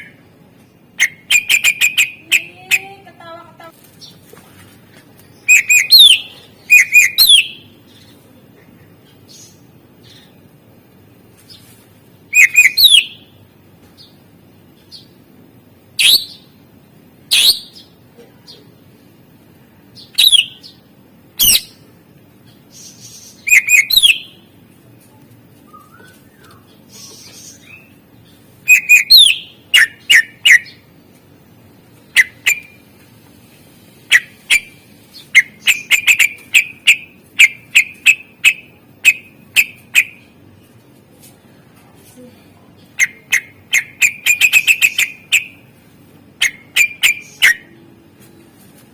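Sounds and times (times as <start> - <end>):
bird whistling and chirping: 1.0 - 2.2, 5.4 - 7.6, 12.3 - 13.2, 20.2 - 20.6, 23.4 - 24.4, 25.7 - 27.9, 28.7 - 30.8.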